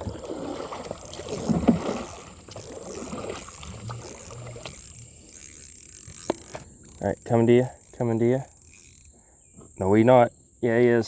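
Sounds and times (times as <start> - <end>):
water sloshing against kayak: 0.0 - 9.8
pulsing insect chirp: 0.0 - 11.0.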